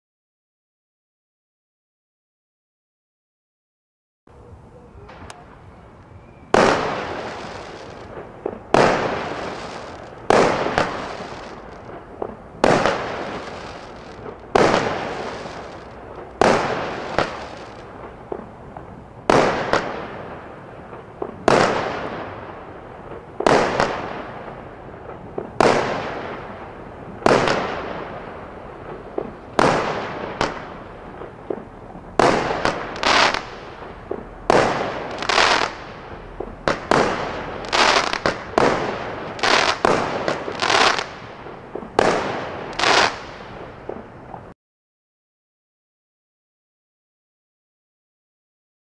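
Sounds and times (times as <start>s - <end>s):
loud firework bursts: 5.0s - 44.1s.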